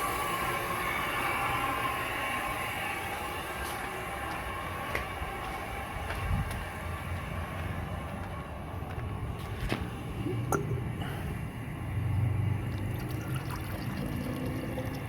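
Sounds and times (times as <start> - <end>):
water rushing from drain valve: 10.2 - 11.0, 12.5 - 15.0.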